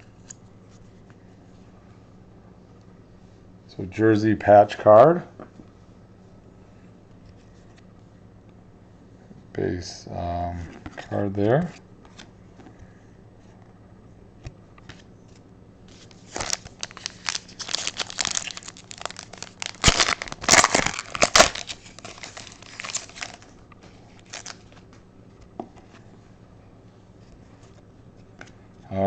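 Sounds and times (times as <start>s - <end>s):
wrapper tearing and crinkling: 15.9s - 23.5s, 24.2s - 24.8s.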